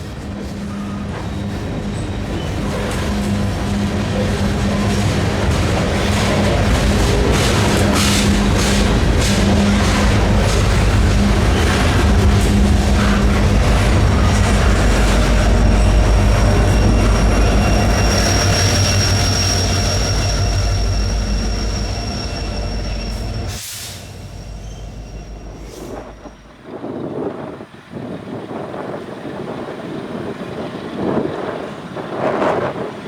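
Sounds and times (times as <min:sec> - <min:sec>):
freight train rumbling over rails: 0:00.0 - 0:33.0
high wheel squeal: 0:00.5 - 0:26.7
wind on microphone: 0:25.8 - 0:33.0.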